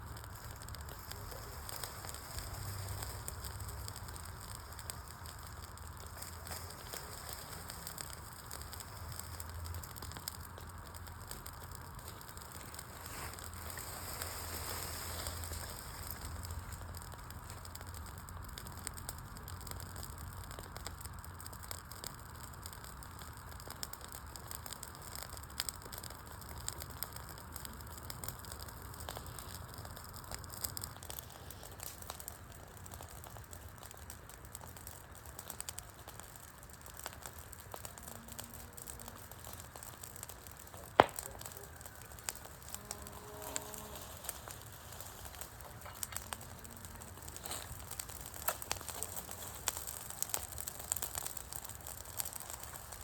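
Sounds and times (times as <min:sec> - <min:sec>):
campfire flames hissing: 0:00.0 - 0:53.0
logs crackling and popping: 0:00.0 - 0:53.0.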